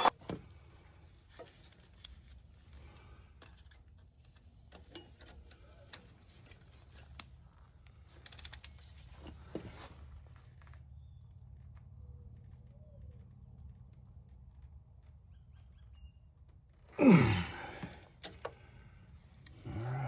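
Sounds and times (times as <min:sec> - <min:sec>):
ratchet wrench clicking: 0:08.2 - 0:08.9.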